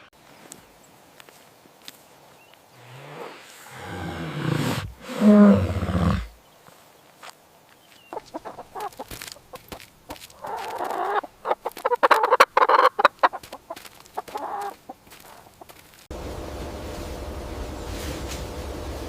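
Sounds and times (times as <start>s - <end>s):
chickens clucking: 8.0s - 16.1s.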